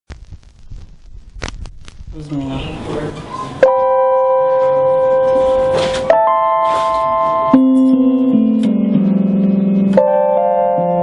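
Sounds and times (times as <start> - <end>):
keyboard bass notes: 2.0 - 11.0
electronic keyboard chords: 3.5 - 11.0.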